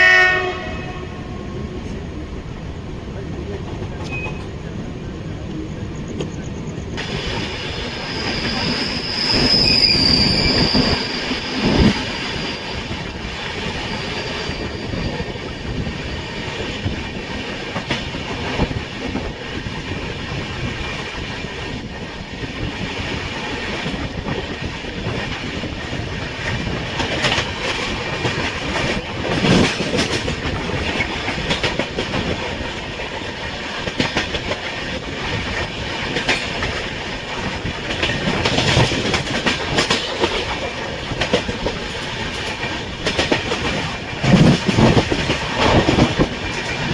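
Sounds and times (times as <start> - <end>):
train rumbling on rails: 0.0 - 46.9
high wheel squeal: 6.7 - 16.3.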